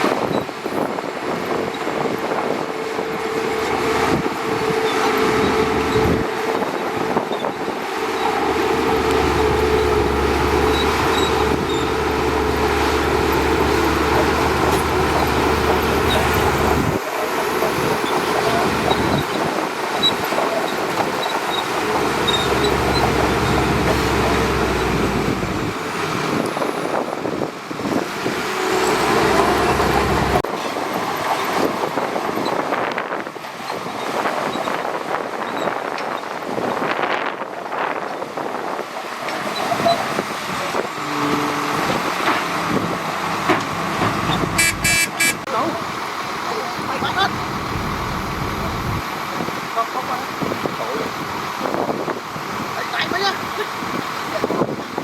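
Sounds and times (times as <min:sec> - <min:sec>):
bulldozer diesel engine: 0:00.0 - 0:35.6, 0:38.3 - 0:55.0
tracks rattling: 0:04.2 - 0:26.3, 0:41.8 - 0:49.0.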